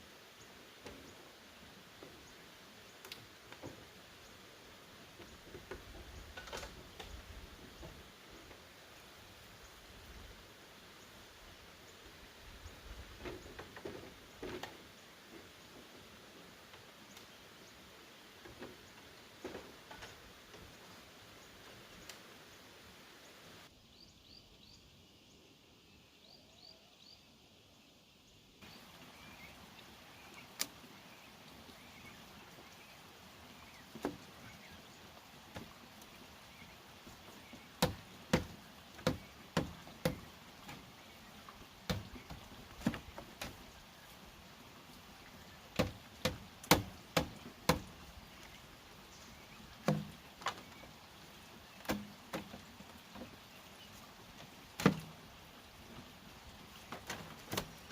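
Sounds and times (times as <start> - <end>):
bamboo struck by hand: 37.8 - 40.2, 45.8 - 47.9.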